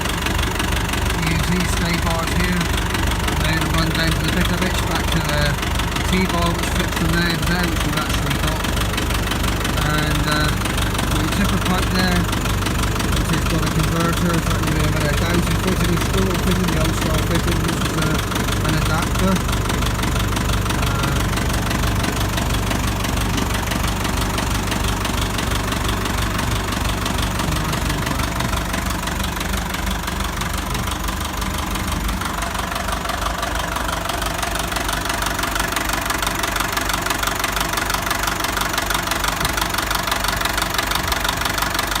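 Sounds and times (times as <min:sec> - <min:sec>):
tractor engine idling: 0:00.0 - 0:42.0.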